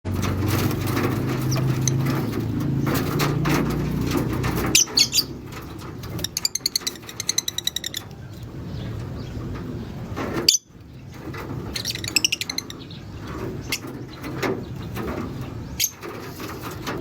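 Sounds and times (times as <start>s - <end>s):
wings fluttering: 0.1s - 17.0s
birds chirping shrilly: 0.2s - 16.8s
rapid high bird chirps: 4.5s - 9.4s.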